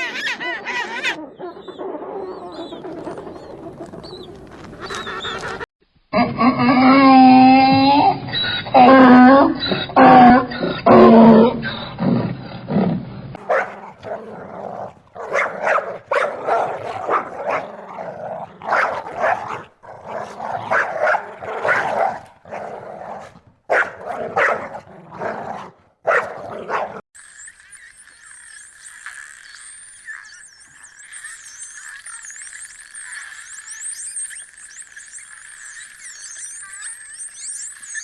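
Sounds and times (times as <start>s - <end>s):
dog growling: 10.0s - 27.0s
dog barking: 13.4s - 27.0s.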